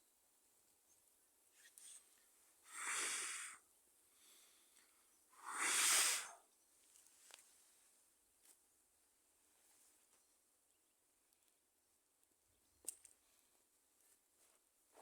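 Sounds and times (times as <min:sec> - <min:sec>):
person blowing on fire: 0:02.7 - 0:03.6, 0:05.4 - 0:06.4.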